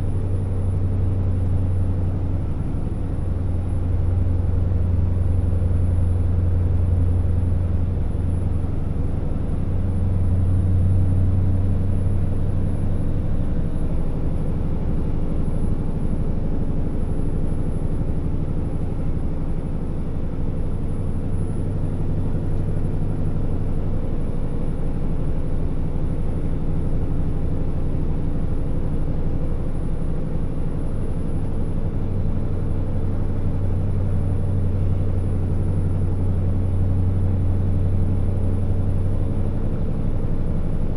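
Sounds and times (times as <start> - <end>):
truck diesel engine droning: 0.0 - 40.9.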